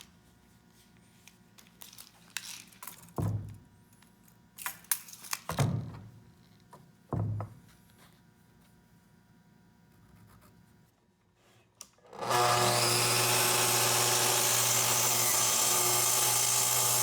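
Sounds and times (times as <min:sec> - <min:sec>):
rustling and crinkling: 0:00.2 - 0:03.2.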